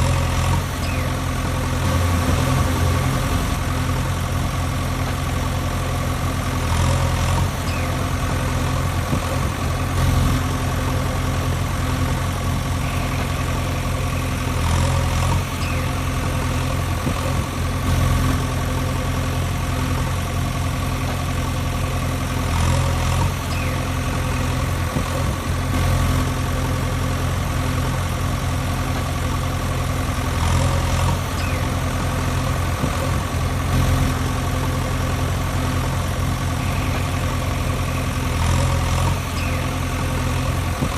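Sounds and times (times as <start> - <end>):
tractor engine idling: 0.0 - 40.9.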